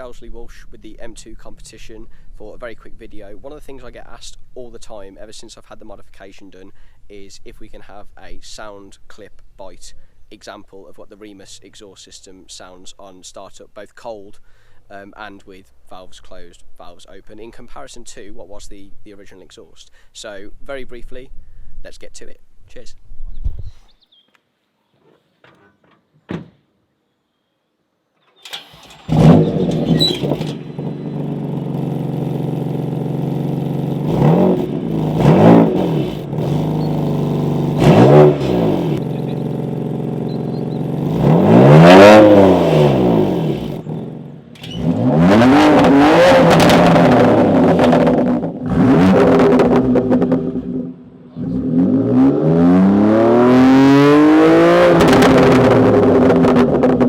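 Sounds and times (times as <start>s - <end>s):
car engine revving and idling: 28.5s - 57.0s.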